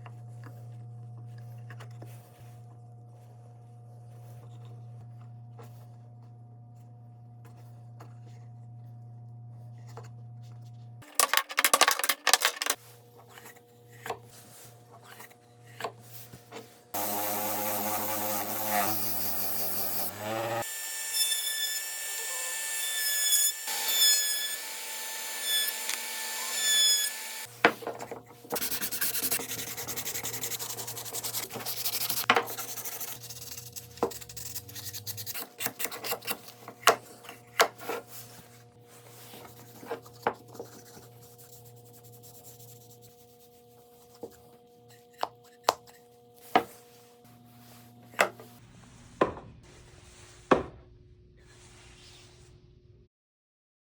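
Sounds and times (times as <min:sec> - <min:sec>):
machine-like sanding: 0:16.9 - 0:27.5, 0:28.5 - 0:36.1, 0:37.8 - 0:49.0
wood being sanded: 0:17.0 - 0:27.5, 0:28.5 - 0:36.5.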